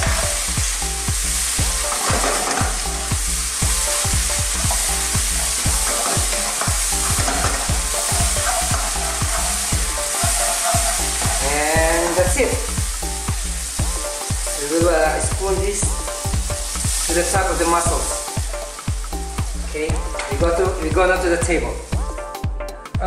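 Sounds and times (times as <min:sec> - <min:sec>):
sauce sizzling in a wok: 0:00.0 - 0:22.3
metal ladle scraping pan: 0:01.8 - 0:02.8, 0:04.5 - 0:12.2.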